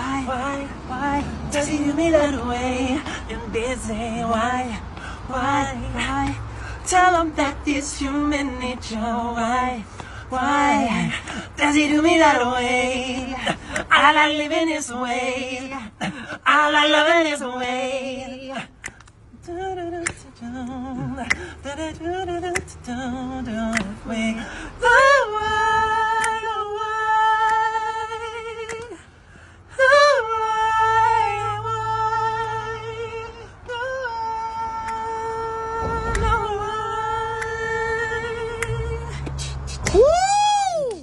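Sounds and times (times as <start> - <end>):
person giving long woo: 38.7 - 41.0.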